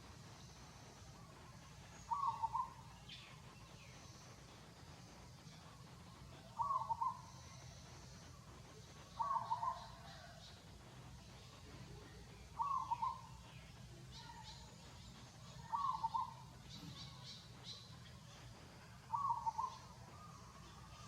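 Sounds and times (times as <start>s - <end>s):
faint high chirps: 0.0s - 21.0s
bird calling: 2.0s - 3.4s, 6.4s - 7.6s, 9.1s - 10.4s, 12.6s - 13.5s, 14.1s - 17.9s, 19.1s - 21.0s.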